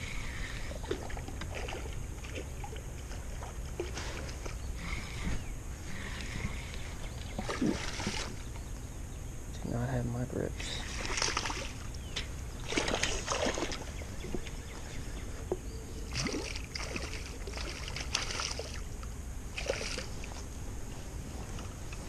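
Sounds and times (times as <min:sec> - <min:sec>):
water splashing: 0:00.4 - 0:05.2, 0:07.3 - 0:08.4, 0:10.8 - 0:11.9, 0:12.6 - 0:14.5, 0:16.1 - 0:18.9, 0:19.5 - 0:20.3.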